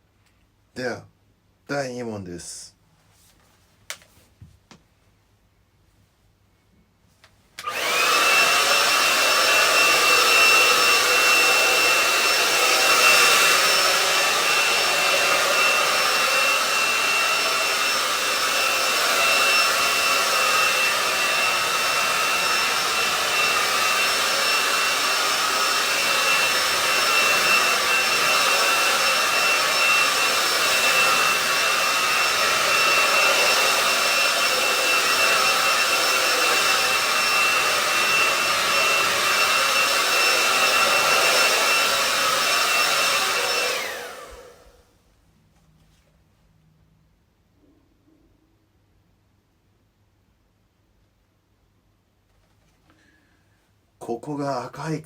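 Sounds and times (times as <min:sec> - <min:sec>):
hair dryer running: 0:07.6 - 0:44.9.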